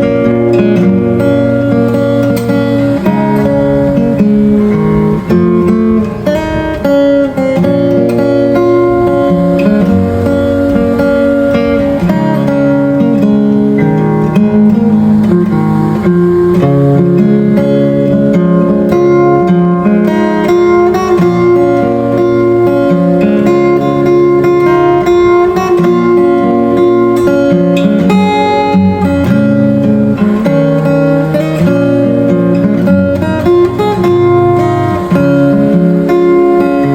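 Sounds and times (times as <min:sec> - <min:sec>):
fingerstyle acoustic guitar: 0:00.0 - 0:36.9.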